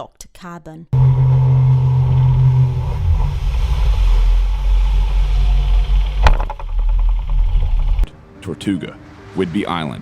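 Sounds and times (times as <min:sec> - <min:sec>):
low engine hum: 0:01.0 - 0:08.1.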